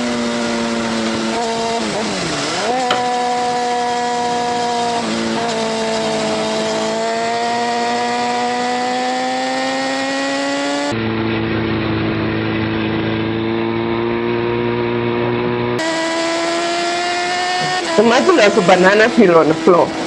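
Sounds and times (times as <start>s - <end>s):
sport bike engine accelerating: 0.0s - 20.0s.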